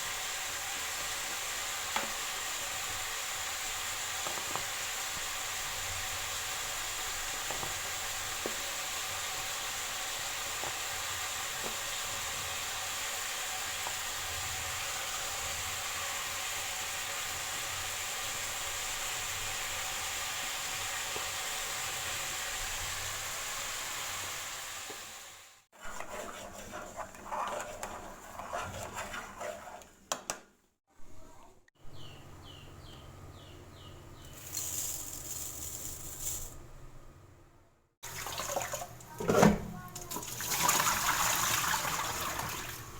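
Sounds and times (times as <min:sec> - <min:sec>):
food sizzling in a pan: 0:00.0 - 0:26.7.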